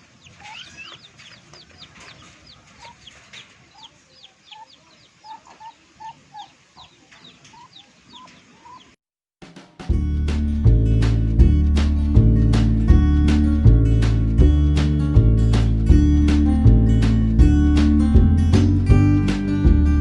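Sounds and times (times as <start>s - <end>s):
chickens clucking: 0.0s - 9.0s
chicks peeping: 0.0s - 9.0s.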